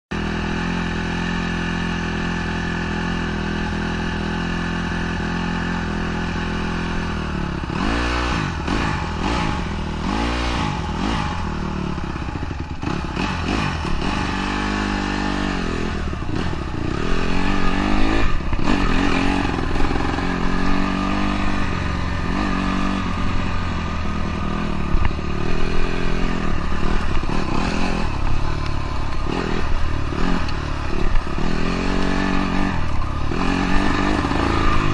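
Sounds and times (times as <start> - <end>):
dirt bike engine: 0.1 - 34.9.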